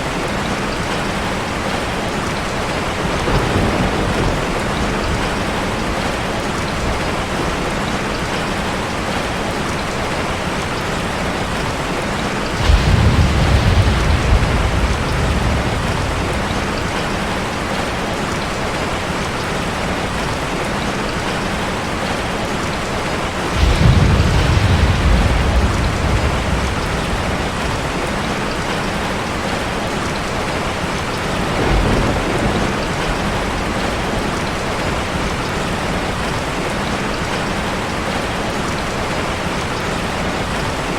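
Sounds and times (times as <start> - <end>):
rushing water: 0.0 - 40.9
deep rumbles: 12.6 - 17.8, 23.5 - 28.8.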